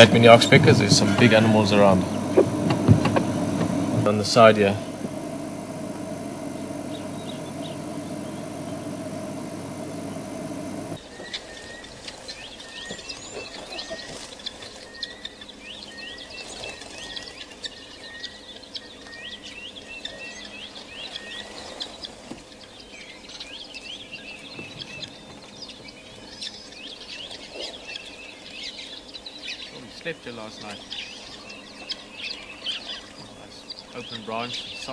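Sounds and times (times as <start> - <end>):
low short bird note: 0.0 - 11.8
birds chirping and twittering: 0.0 - 34.9.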